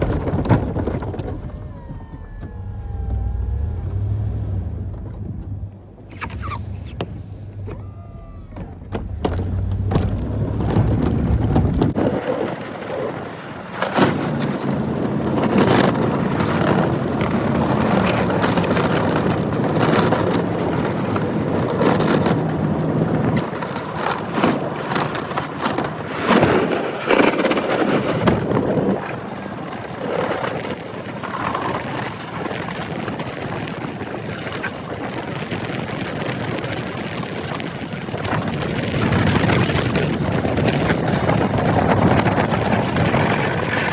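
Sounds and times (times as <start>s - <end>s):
truck engine running: 0.0s - 12.0s
wind on microphone: 0.0s - 43.9s.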